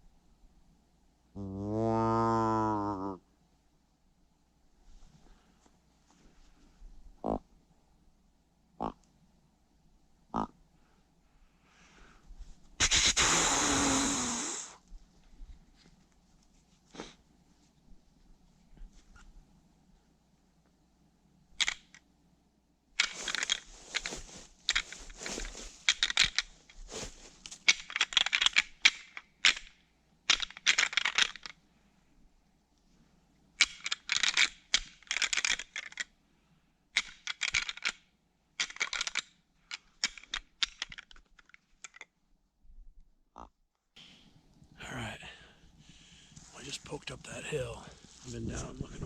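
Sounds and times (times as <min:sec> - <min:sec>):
footsteps crunching on frozen ground: 0:23.1 - 0:25.9.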